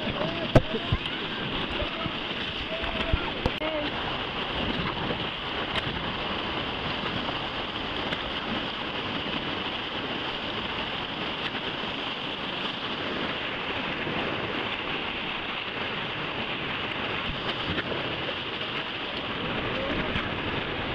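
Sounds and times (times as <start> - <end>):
river water rushing: 0.0 - 20.9
wind noise on microphone: 0.0 - 20.9.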